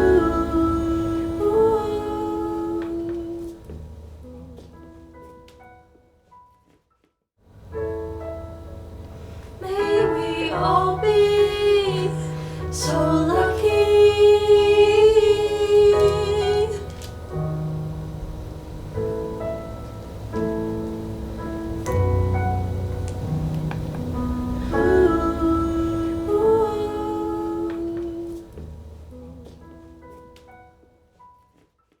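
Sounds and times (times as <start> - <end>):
women singing a ballad: 0.0 - 3.6, 9.6 - 17.2, 24.6 - 28.5
piano playing: 0.0 - 6.8, 7.4 - 31.7.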